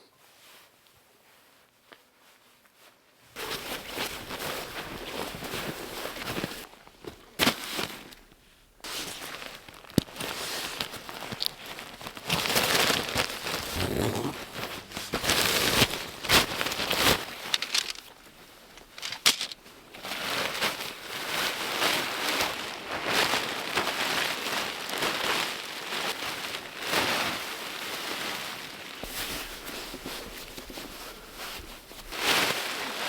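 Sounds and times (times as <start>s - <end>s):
boots crunching packed snow: 8.9s - 18.1s.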